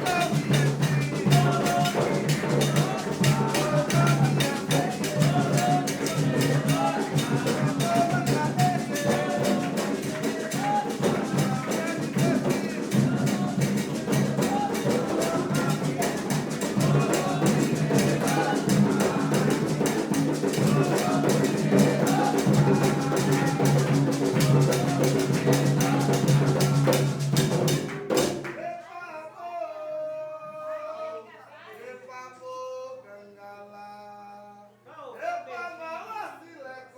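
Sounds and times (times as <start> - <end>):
voices singing: 0.0 - 28.2
fast hand-drum percussion: 0.0 - 28.5.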